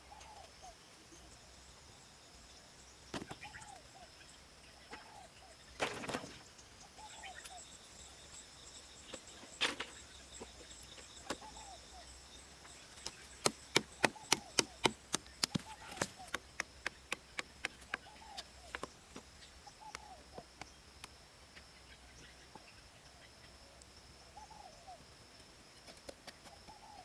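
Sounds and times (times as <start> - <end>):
insects droning: 0.0 - 27.0
short chirping calls: 6.7 - 20.8
bamboo being chopped: 13.0 - 18.1.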